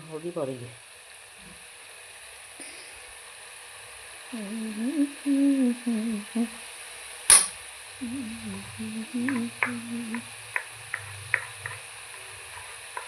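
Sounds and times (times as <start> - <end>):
woman humming: 4.3 - 6.7, 8.0 - 10.4.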